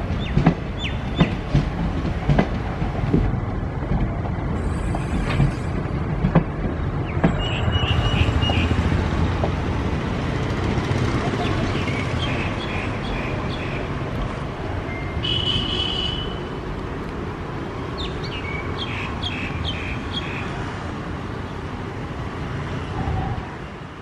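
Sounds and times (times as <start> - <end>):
train coaches rumbling: 0.0 - 24.0
bird chirping: 7.0 - 8.8, 11.4 - 13.9.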